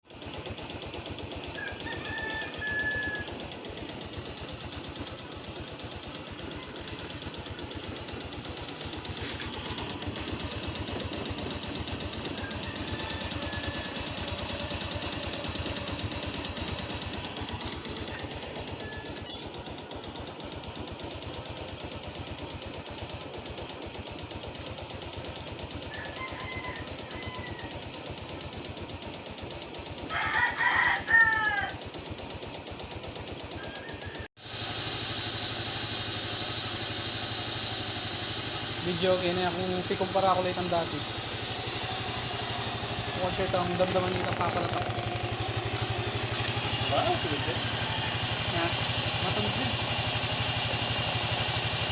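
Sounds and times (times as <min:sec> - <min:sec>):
motorcycle engine idling with knock: 0:00.1 - 0:51.9
rooster crowing: 0:01.5 - 0:03.4, 0:06.3 - 0:08.0, 0:12.2 - 0:15.8, 0:18.1 - 0:19.5, 0:25.9 - 0:27.9, 0:30.1 - 0:31.8, 0:33.6 - 0:34.3, 0:41.2 - 0:48.5.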